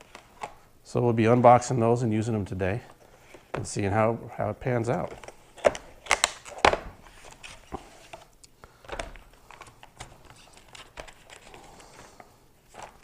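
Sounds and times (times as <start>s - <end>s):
packaging crinkling and rustling: 4.8s - 13.0s.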